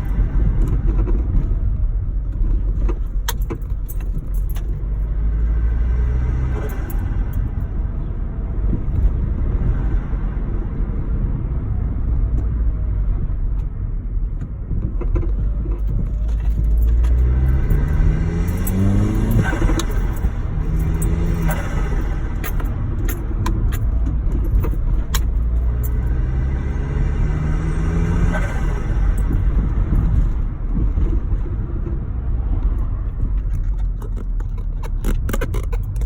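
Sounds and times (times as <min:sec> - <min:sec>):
light clicks and rattles: 0:00.0 - 0:05.1, 0:14.3 - 0:26.3, 0:32.6 - 0:36.0
car engine rumbling: 0:00.0 - 0:36.0.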